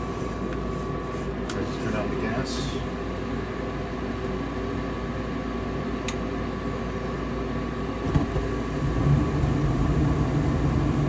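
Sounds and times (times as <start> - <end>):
furnace blower motor humming: 0.0 - 11.0
low rumble: 8.1 - 11.0.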